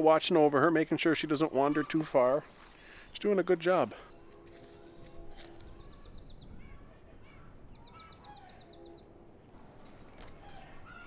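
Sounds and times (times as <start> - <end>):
bird chirps: 1.3 - 11.0
small bird trilling: 5.2 - 9.5.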